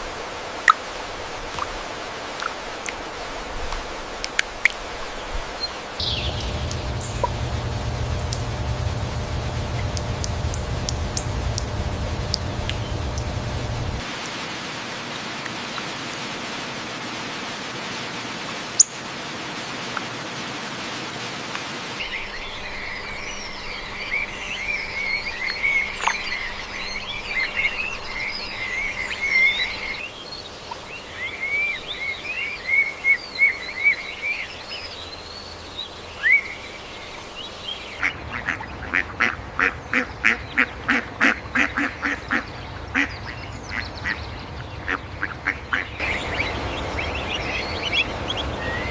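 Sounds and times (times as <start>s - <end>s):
steady hiss: 4.9s - 38.0s
birds chirping and twittering: 5.2s - 14.1s, 21.9s - 38.9s, 39.7s - 48.9s
harsh repeated bird calls: 6.0s - 14.0s, 39.6s - 48.9s.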